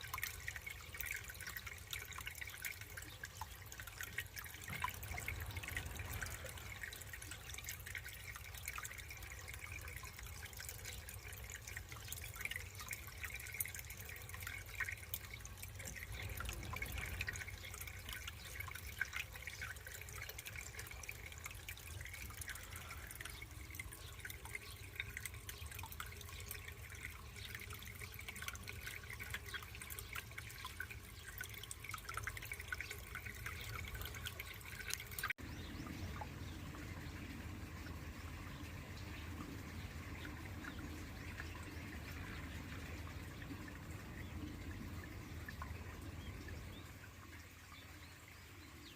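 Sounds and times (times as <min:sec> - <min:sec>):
low steady hum: 0:00.0 - 0:48.7
small drips and splashes: 0:00.0 - 0:48.9
water trickling: 0:00.0 - 0:48.9.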